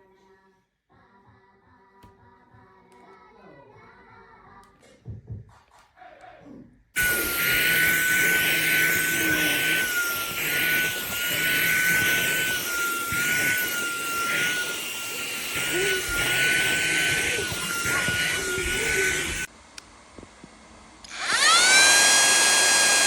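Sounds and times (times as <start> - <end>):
handheld vacuum motor whining: 7.0 - 19.5, 21.0 - 23.0.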